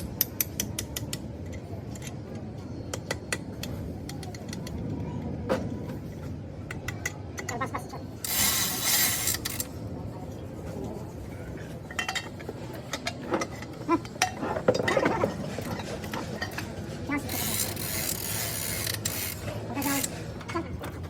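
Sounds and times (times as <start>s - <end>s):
hand tools clicking on metal: 0.0s - 2.2s, 17.2s - 20.8s.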